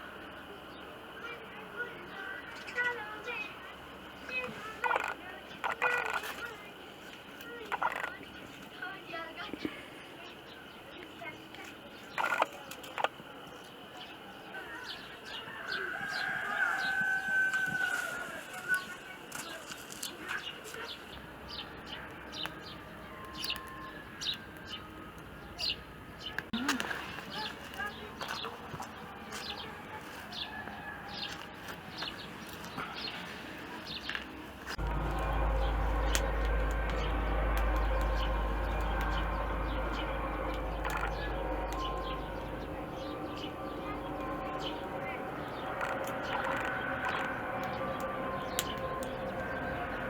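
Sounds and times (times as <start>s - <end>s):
small birds chirping: 0.0s - 50.0s
rooster crowing: 14.5s - 19.2s, 29.9s - 31.6s, 34.8s - 50.0s.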